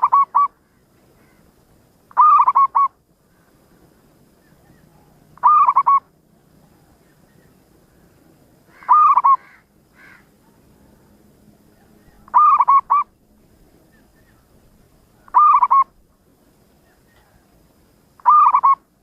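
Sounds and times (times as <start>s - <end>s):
dove cooing: 0.0s - 1.4s, 2.1s - 3.0s, 4.4s - 7.6s, 8.7s - 10.9s, 11.7s - 13.2s, 15.2s - 16.0s, 18.2s - 18.9s.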